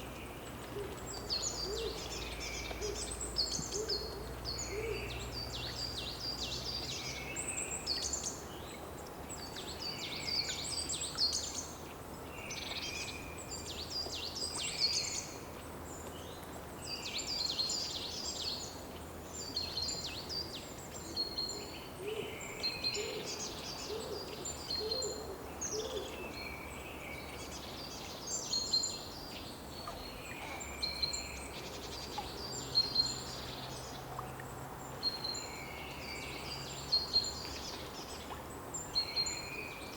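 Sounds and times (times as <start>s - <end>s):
songbirds twittering: 0.0s - 39.9s.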